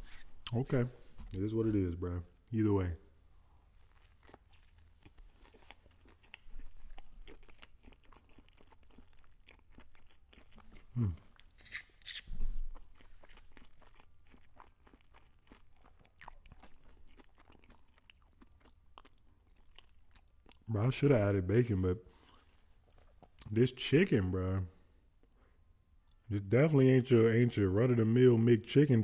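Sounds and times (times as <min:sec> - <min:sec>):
crunching and chewing: 0:03.4 - 0:20.7, 0:22.1 - 0:23.6.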